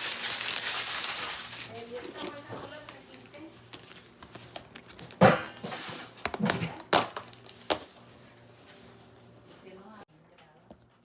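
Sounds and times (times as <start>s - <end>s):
rustling: 0.0s - 4.6s.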